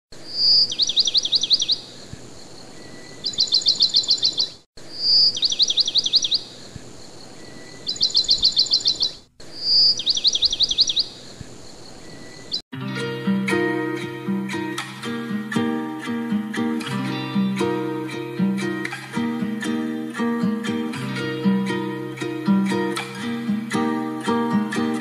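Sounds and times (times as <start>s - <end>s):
songbird singing: 0.2s - 12.6s.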